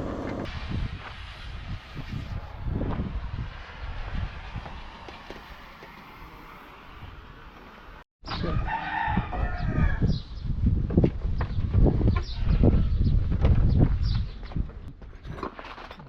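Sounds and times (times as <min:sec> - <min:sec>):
rooster crowing: 0:08.4 - 0:10.1.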